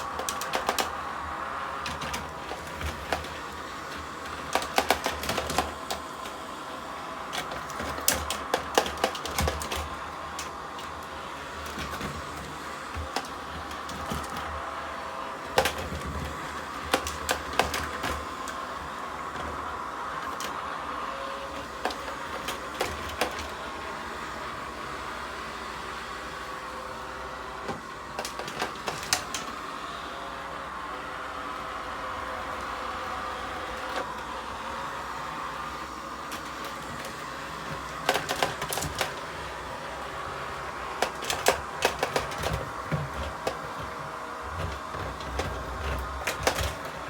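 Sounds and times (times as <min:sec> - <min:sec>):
robot vacuum humming: 0:00.0 - 0:47.0
sharp clicks and knocks: 0:41.0 - 0:43.9.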